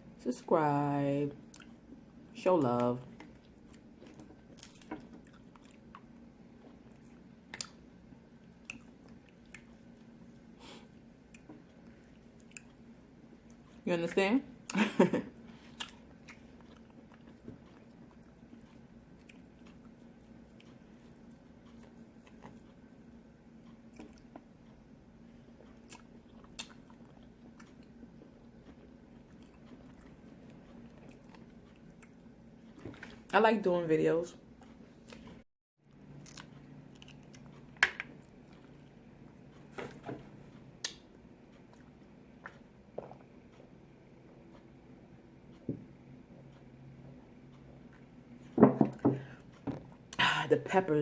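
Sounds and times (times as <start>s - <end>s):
low steady hum: 0.0s - 51.0s
person chewing food: 1.4s - 2.0s, 3.1s - 13.8s, 15.4s - 33.3s, 34.5s - 39.7s, 40.3s - 44.7s
wet mouth clicks and smacks: 7.5s - 7.8s.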